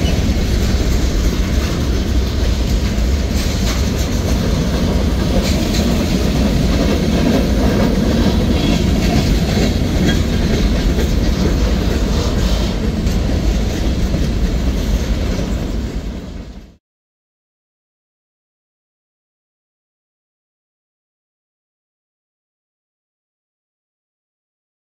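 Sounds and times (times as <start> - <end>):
wheels clacking over rail joints: 0.0 - 16.6
freight train rumble: 0.0 - 16.8.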